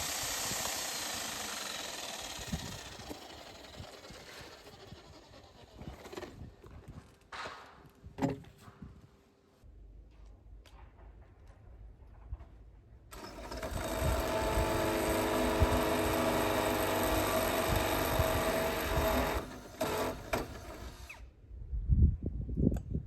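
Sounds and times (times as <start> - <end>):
power tool motor running: 0.0 - 6.2, 13.1 - 21.2.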